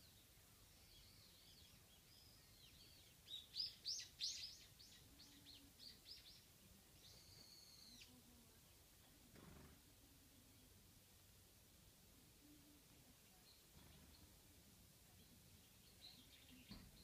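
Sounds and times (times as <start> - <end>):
songbird calls: 0.0 - 8.2.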